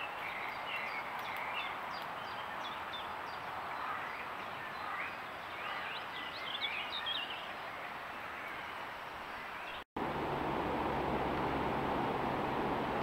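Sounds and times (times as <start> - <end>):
birds chirping: 0.0 - 9.8.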